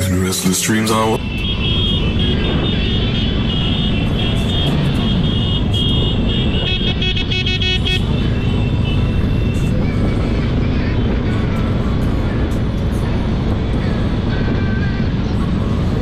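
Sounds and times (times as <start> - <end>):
music: 0.0 - 1.2, 8.1 - 16.0
many motorcycle engines rumbling: 0.0 - 16.0.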